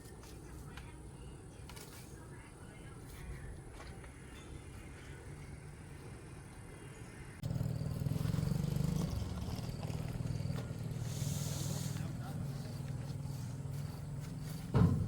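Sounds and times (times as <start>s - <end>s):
car engine idling: 7.4s - 15.0s.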